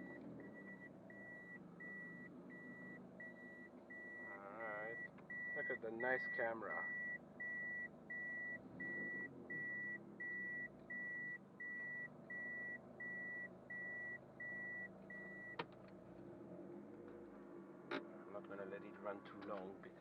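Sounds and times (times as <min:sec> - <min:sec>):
reverse warning beeps: 0:00.0 - 0:15.6
car engine idling: 0:00.0 - 0:20.0.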